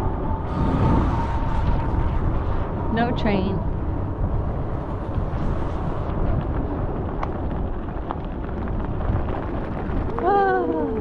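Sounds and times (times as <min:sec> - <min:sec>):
electric bike rolling rumble: 0:00.0 - 0:11.0
wind buffeting microphone: 0:00.0 - 0:11.0.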